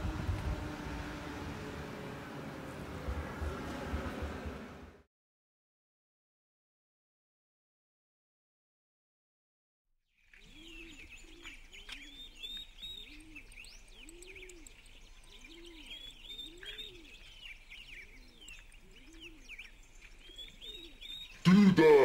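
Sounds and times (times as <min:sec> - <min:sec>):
small birds chirping: 0:10.2 - 0:21.8
repeated low bird call: 0:10.5 - 0:22.0.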